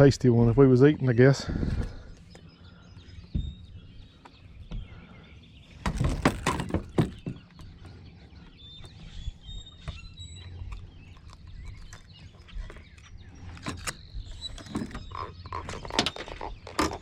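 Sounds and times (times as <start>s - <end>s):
birds chirping: 0.0s - 17.0s
knocks and thumps: 3.3s - 3.7s, 5.8s - 7.6s.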